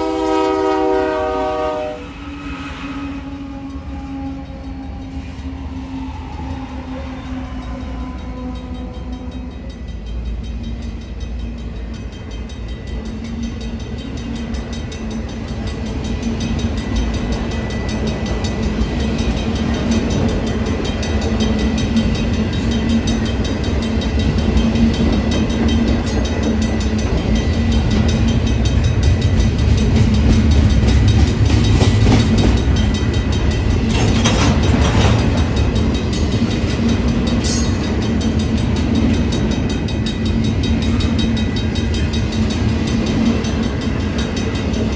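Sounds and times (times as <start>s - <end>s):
train rolling past: 0.0s - 44.9s
wheels clattering over rail joints: 14.8s - 44.9s.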